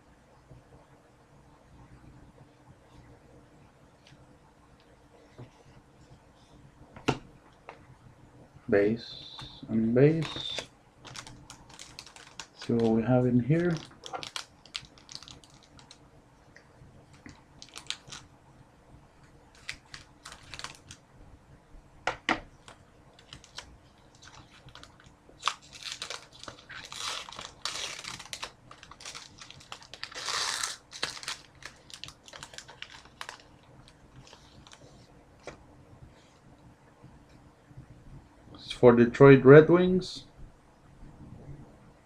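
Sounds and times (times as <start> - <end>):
wrapper crinkling: 10.1 - 16.0, 17.1 - 18.3, 19.5 - 21.0, 22.6 - 35.5.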